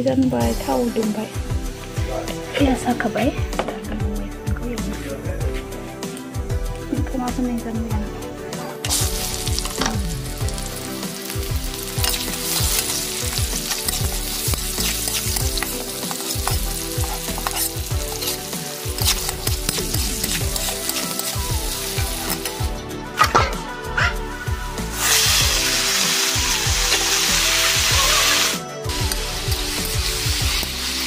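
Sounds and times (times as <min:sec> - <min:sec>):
onions sizzling in hot oil: 0:08.8 - 0:31.0
metal spatula stirring in wok: 0:08.9 - 0:22.6.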